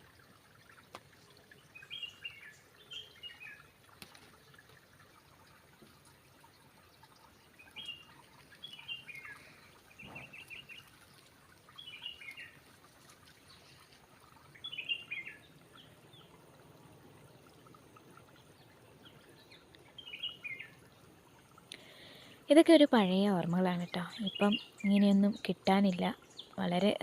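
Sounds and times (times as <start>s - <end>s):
faint steady background noise: 0.0s - 27.0s
bird chirping: 1.6s - 3.7s, 7.2s - 12.6s, 13.4s - 16.4s, 17.0s - 21.0s, 23.7s - 27.0s.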